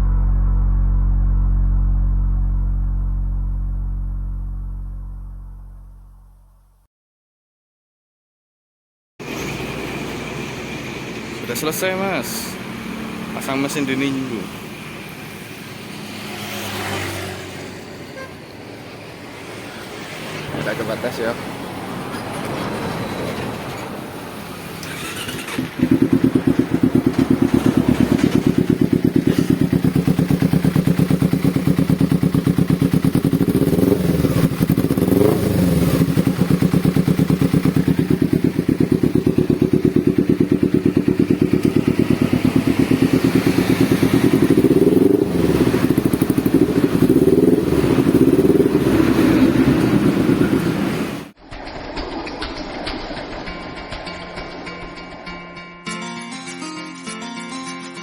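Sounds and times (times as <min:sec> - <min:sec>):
engine revving: 0:15.7 - 0:17.7, 0:24.6 - 0:51.4
motorcycle engine starting and idling: 0:23.4 - 0:55.4.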